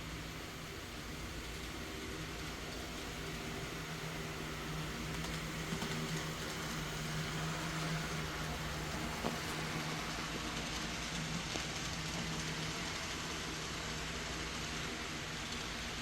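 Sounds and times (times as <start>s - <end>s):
constant hiss: 0.0s - 16.0s
model locomotive humming: 0.0s - 16.0s.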